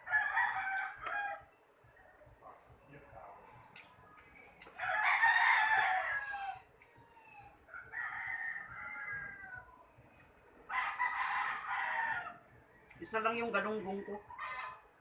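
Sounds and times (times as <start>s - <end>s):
rooster crowing: 0.0s - 1.5s, 4.8s - 9.9s, 10.7s - 13.0s, 14.2s - 14.9s.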